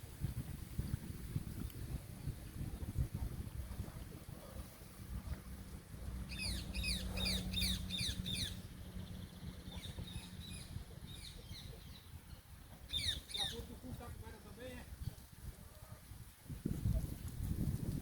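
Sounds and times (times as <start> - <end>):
songbird chirping: 6.2 - 13.8.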